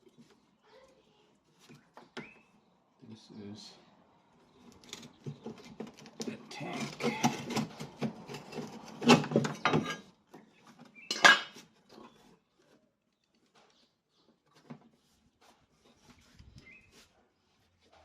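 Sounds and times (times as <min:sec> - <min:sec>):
metal tools clanking: 0:08.3 - 0:10.1, 0:11.0 - 0:11.6.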